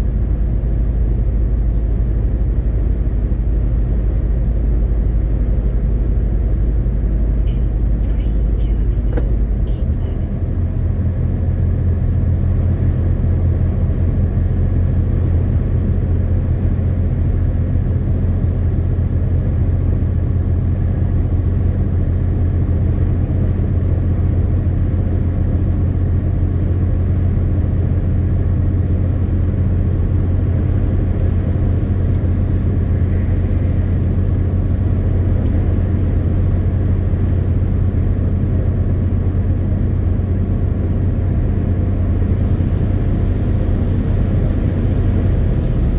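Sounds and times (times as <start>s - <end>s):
truck diesel engine drone: 0.0s - 45.9s.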